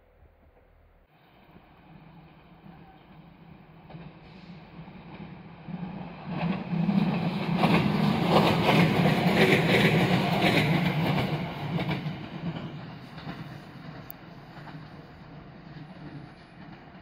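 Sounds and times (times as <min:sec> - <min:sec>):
train wheels rumbling on rails: 0:00.0 - 0:17.0
wheels clacking over rail joints: 0:05.0 - 0:17.0.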